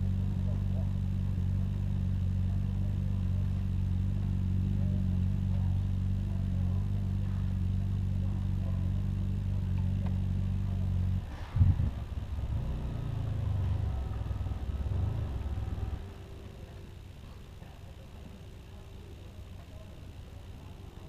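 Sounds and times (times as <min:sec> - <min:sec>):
motorcycle engine droning: 0:00.0 - 0:21.0.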